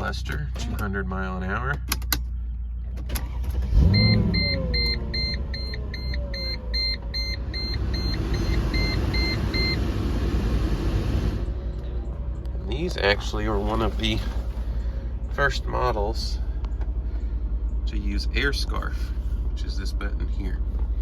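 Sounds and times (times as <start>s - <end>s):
car engine starting and idling: 0.0s - 21.0s
dashboard warning chime beeping: 3.8s - 10.0s.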